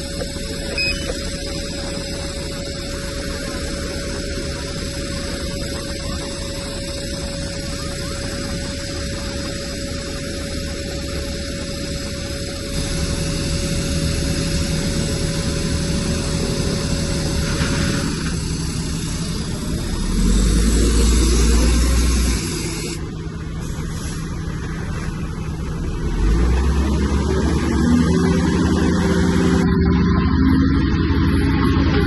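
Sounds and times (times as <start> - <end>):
bulldozer diesel engine running: 0.0 - 32.0.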